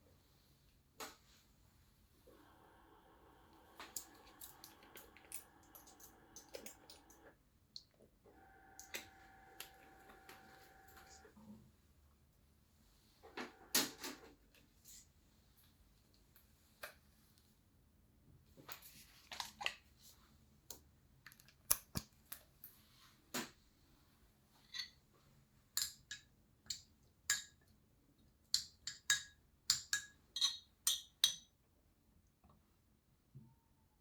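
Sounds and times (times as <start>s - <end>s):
clinks and taps on dishes: 28.6s - 31.5s.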